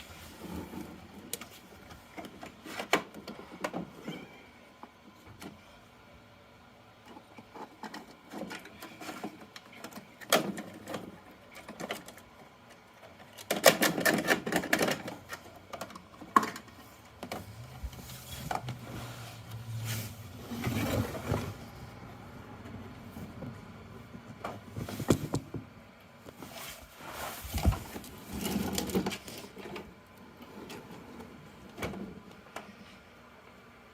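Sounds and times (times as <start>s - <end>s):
plastic toy parts rattling: 7.5s - 17.4s
dense clatter of toy trash: 13.2s - 17.5s, 27.4s - 29.8s.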